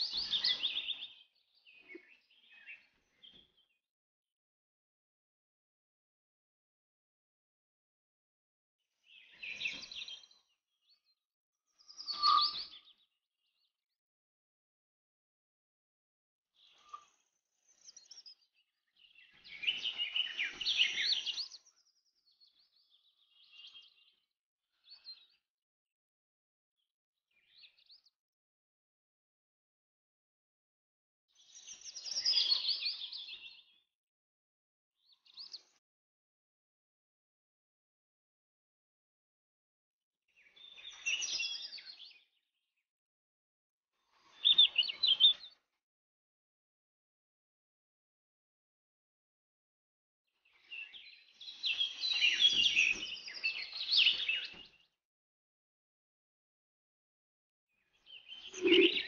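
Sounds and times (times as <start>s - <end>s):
small birds twittering: 0.0s - 3.8s, 9.0s - 11.0s, 11.7s - 13.7s, 16.6s - 25.4s, 31.4s - 33.8s, 40.4s - 42.4s, 44.1s - 45.6s, 50.4s - 54.9s, 57.8s - 59.0s
birds chirping: 50.7s - 54.9s, 58.0s - 59.0s.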